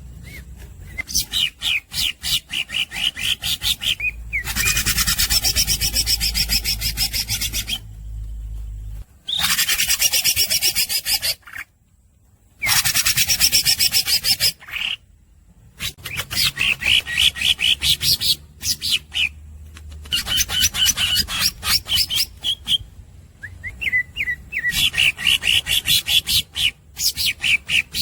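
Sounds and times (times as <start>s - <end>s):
short rising whistles: 0.0s - 1.6s
bird singing harsh rasping runs: 0.0s - 11.7s.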